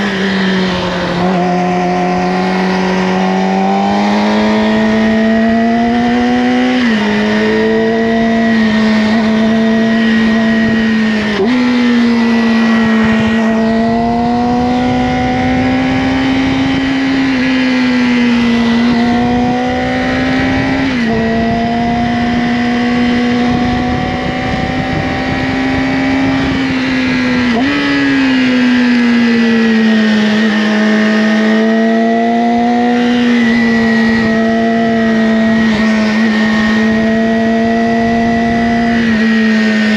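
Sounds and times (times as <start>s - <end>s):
sport bike engine running: 0.0s - 39.9s
wind rush: 0.0s - 39.9s.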